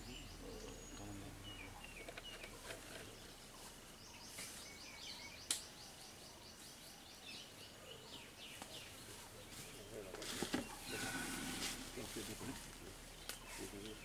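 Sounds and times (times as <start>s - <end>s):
faint outdoor background noise: 0.0s - 14.0s
sharp click: 5.4s - 5.7s.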